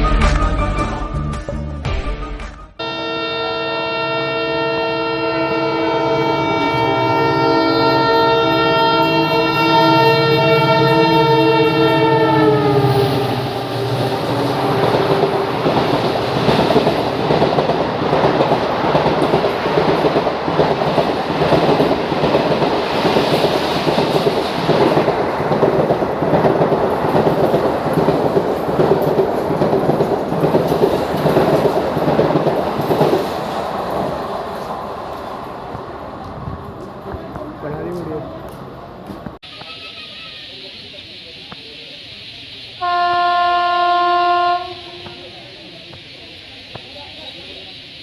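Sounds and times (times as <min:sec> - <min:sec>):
locomotive horn: 0:02.8 - 0:16.0, 0:42.8 - 0:45.4
wheels clickety-clack over rail joints: 0:13.6 - 0:39.4.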